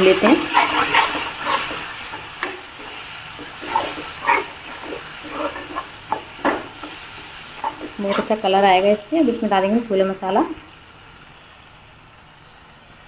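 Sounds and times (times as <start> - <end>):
steel spoon scraping pan: 0.0 - 8.5
puree sizzling in oil: 0.0 - 13.0.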